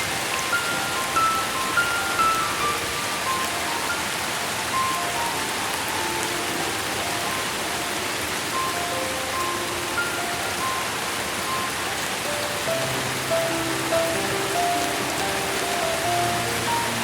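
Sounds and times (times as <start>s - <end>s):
soft melody of single notes: 0.0s - 17.0s
steady rain: 0.0s - 17.0s.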